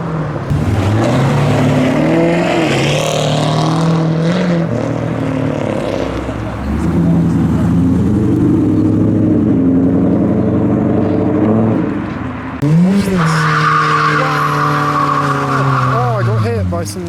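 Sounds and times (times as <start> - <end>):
car engine revving: 0.0 - 17.0
tyre squealing: 10.4 - 17.0.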